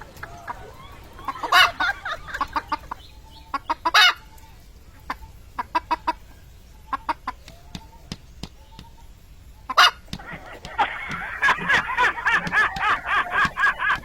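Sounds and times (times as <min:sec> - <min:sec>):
chicken clucking: 0:00.0 - 0:14.0
sharp taps and knocks: 0:07.4 - 0:09.0, 0:10.0 - 0:14.0.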